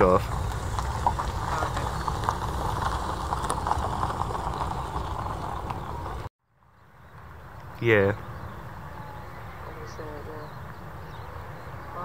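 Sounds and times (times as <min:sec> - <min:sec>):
jet engines rumbling: 0:00.0 - 0:06.3
wind buffeting microphone: 0:00.0 - 0:06.3.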